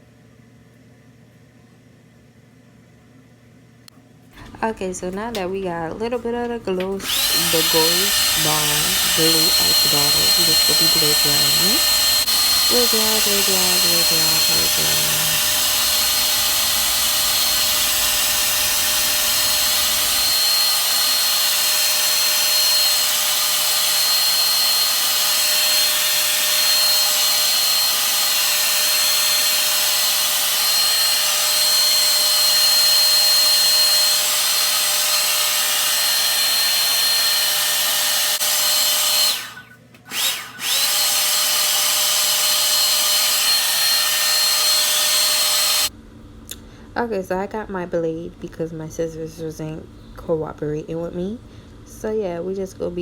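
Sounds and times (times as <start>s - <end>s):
hair dryer running: 5.1s - 46.0s.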